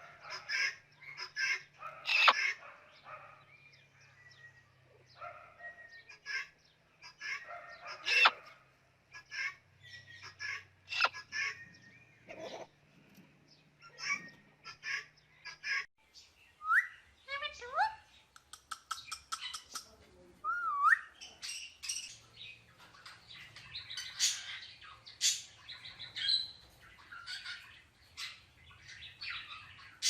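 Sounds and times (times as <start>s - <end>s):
parrot squawking: 0.1s - 2.7s, 6.1s - 11.6s.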